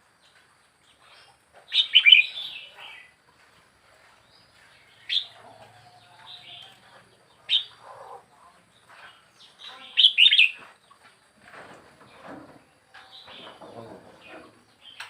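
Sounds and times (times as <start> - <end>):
bird chirping: 0.2 - 3.2, 4.2 - 11.0.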